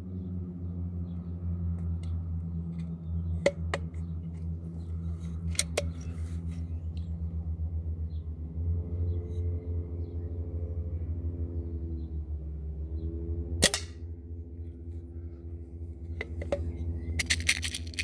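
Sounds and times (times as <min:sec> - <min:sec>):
steady low hum: 0:00.0 - 0:18.0
rifle shots: 0:13.6 - 0:14.0.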